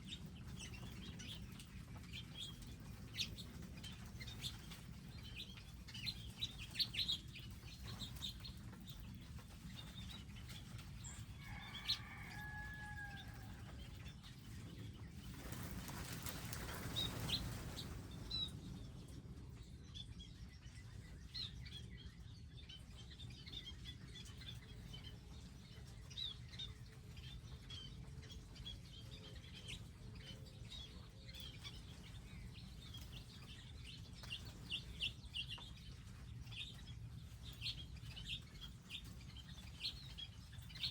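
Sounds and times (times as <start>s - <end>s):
small birds chirping: 0.0s - 40.9s
wings flapping: 15.2s - 18.3s.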